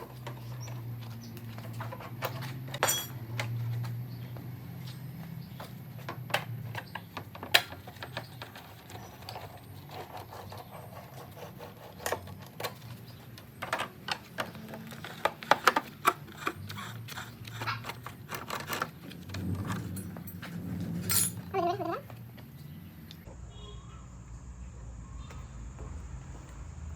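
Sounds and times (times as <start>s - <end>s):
metal tools clicking and clinking: 1.7s - 3.7s, 17.4s - 21.9s.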